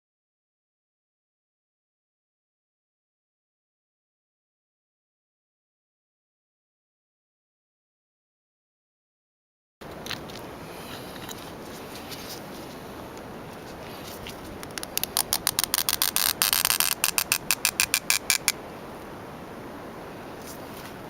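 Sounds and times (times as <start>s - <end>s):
steady low hiss: 9.8s - 21.0s
rapid sharp clicks: 14.6s - 18.6s.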